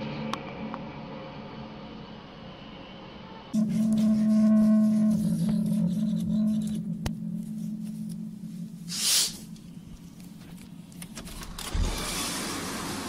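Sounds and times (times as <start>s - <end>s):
low steady drone: 0.0s - 11.7s
short hiss: 8.9s - 9.4s.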